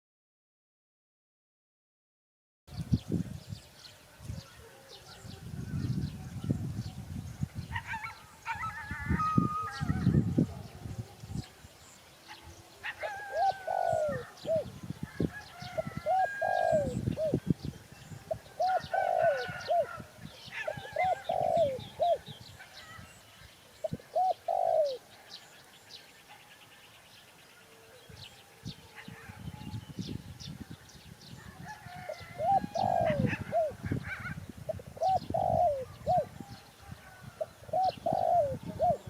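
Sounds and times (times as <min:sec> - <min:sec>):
small birds chirping: 0:09.8 - 0:39.0
dove cooing: 0:12.3 - 0:23.2, 0:23.8 - 0:25.1, 0:31.6 - 0:39.0.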